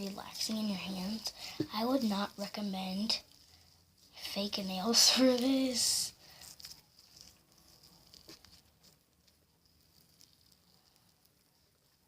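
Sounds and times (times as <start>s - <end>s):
slime squishing: 0.0s - 12.0s.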